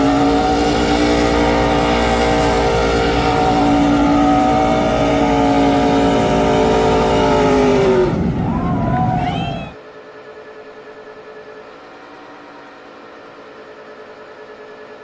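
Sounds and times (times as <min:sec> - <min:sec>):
spinning tyres hissing: 0:00.0 - 0:09.8
truck engine at high revs: 0:00.0 - 0:09.8.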